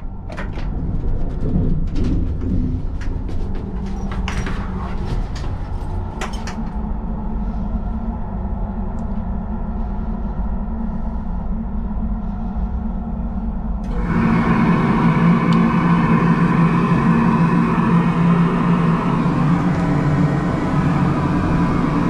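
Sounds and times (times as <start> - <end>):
train low hum: 0.0 - 22.0
rushing noise: 13.8 - 22.0.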